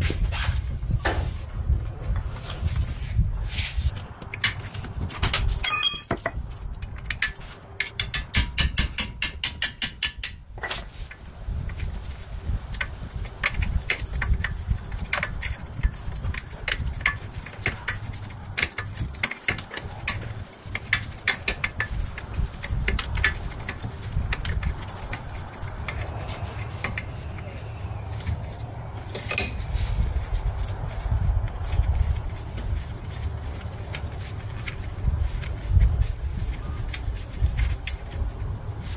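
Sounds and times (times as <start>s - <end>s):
metallic clang with ringing: 5.6s - 6.3s
metal knocks and taps: 5.6s - 6.4s.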